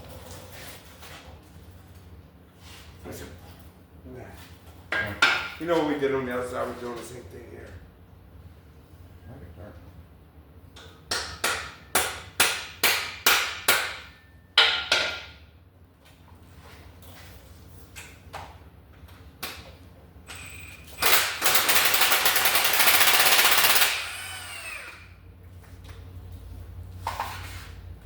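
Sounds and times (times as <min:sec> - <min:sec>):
air impact wrench hammering: 0:10.8 - 0:15.4, 0:20.3 - 0:25.1.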